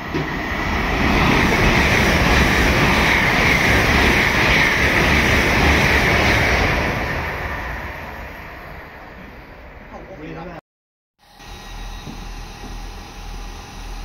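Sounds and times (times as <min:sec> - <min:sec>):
high-speed train passing: 0:00.0 - 0:10.6.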